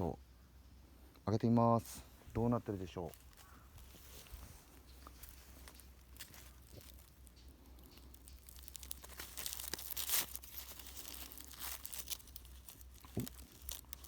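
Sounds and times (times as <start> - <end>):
aluminium foil crinkling: 3.1 - 14.0.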